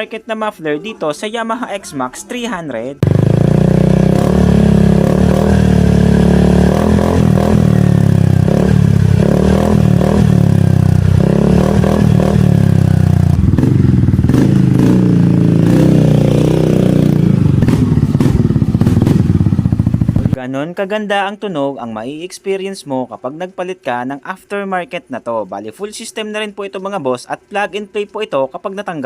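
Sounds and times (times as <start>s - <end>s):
scooter engine revving: 3.0s - 20.4s.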